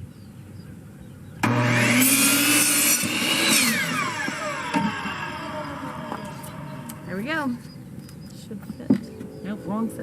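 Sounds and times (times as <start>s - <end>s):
power saw cutting wood: 1.4s - 7.6s.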